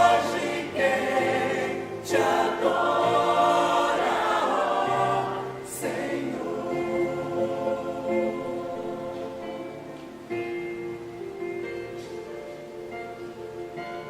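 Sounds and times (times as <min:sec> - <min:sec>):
church choir singing a hymn: 0:00.0 - 0:10.0.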